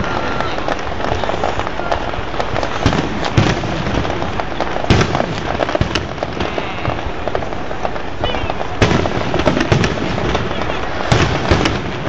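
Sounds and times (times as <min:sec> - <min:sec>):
continuous rumble: 0:00.0 - 0:12.0
fireworks booms: 0:00.0 - 0:12.0
fireworks crackles and bangs: 0:00.0 - 0:12.0.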